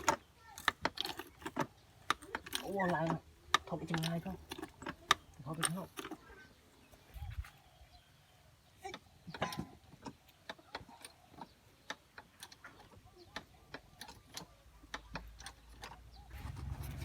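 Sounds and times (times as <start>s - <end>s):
low engine-like hum: 16.3s - 17.0s.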